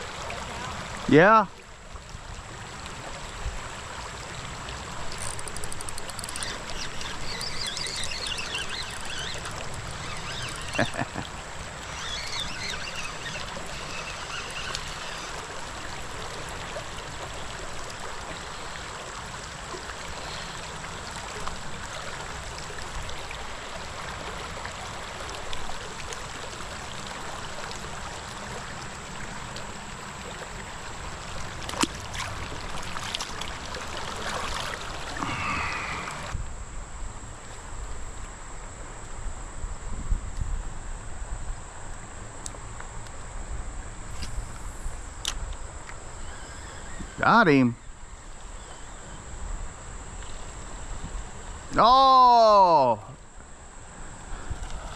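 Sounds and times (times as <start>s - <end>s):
creek water trickling over riffles: 0.0s - 36.4s
faint clicks: 4.9s - 15.5s.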